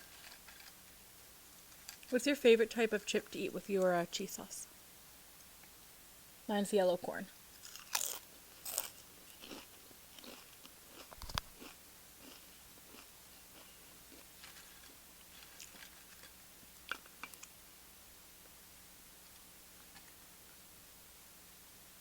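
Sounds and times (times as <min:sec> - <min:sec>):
person crunching chips: 0:07.6 - 0:17.5.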